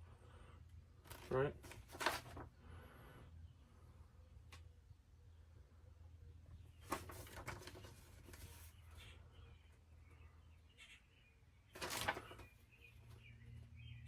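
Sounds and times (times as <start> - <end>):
low steady hum: 0.0 - 14.0
rustling: 1.0 - 2.5, 6.8 - 9.0, 11.8 - 12.7.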